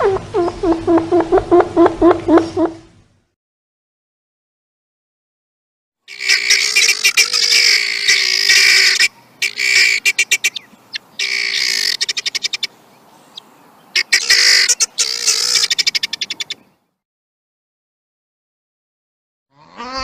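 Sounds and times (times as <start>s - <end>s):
guinea fowl rattling calls: 6.1s - 12.7s, 13.3s - 16.6s.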